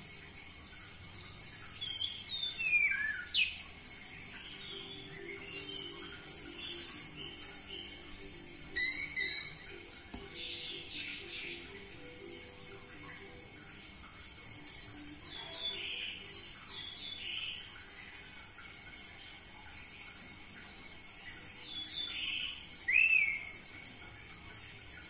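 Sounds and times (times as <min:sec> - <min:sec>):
thrush singing whistled notes: 0:01.7 - 0:03.6.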